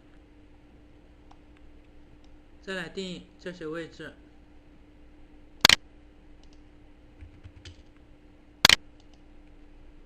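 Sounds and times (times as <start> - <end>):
steady low hum: 0.0 - 10.0
sharp computer clicks: 5.6 - 5.8, 8.6 - 9.2.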